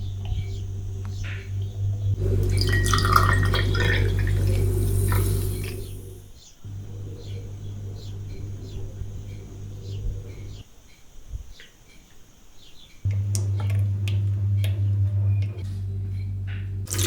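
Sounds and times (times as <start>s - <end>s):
steady low hum: 0.0s - 10.7s, 13.0s - 17.0s
small birds cheeping: 0.0s - 13.1s.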